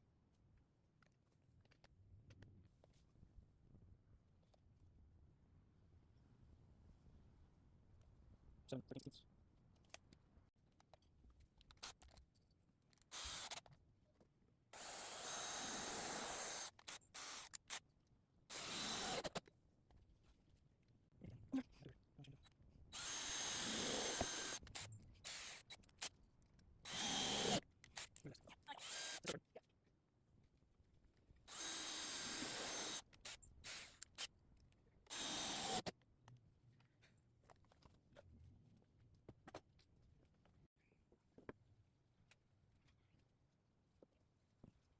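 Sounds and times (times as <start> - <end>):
power drill running: 13.1 - 13.6, 14.8 - 17.8, 18.5 - 19.4, 23.0 - 25.7, 26.9 - 27.6, 28.8 - 29.3, 31.5 - 34.0, 35.1 - 35.9.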